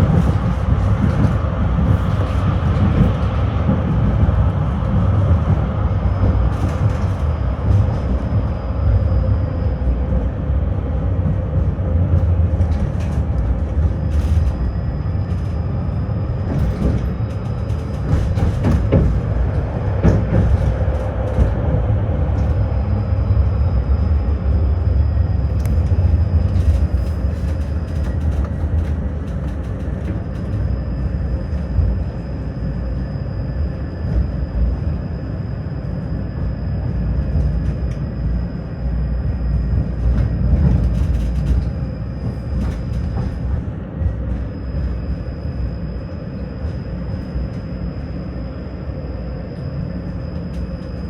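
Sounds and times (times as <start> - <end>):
tram interior rumble: 0.0 - 51.0
faint high whine: 30.3 - 51.0.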